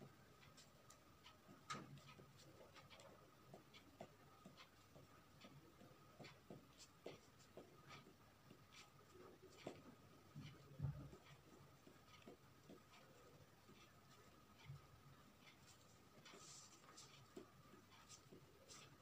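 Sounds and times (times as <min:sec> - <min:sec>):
faint steady hum: 0:00.0 - 0:19.0
pencil scratching on paper: 0:10.4 - 0:19.0.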